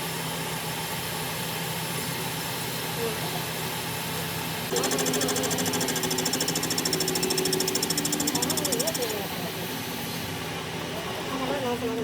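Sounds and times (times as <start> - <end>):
workshop machinery humming: 0.0 - 12.0
fast even rattle: 4.7 - 9.2.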